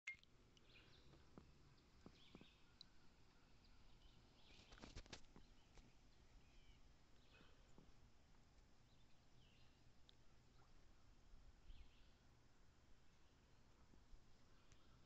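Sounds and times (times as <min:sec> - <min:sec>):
faint bird chirps: 0:00.1 - 0:07.9, 0:14.4 - 0:15.0.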